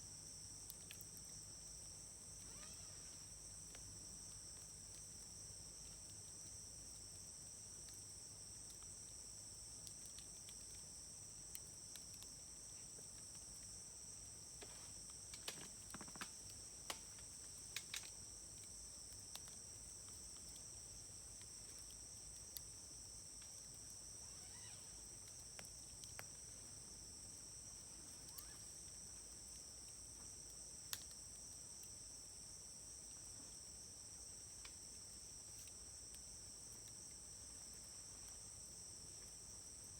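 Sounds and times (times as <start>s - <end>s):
insects chirring: 0.3s - 39.9s
wood fire crackling and popping: 14.6s - 20.4s.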